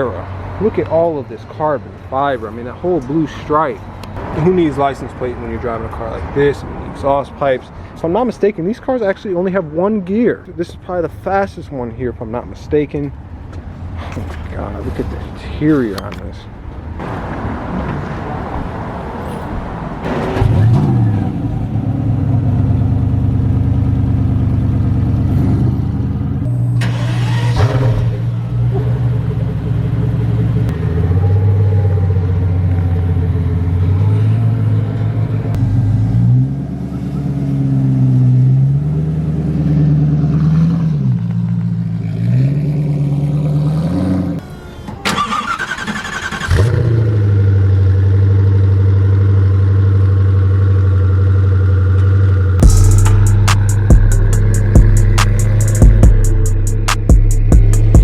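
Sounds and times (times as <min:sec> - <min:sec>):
car engine revving and idling: 0:20.0 - 0:58.0.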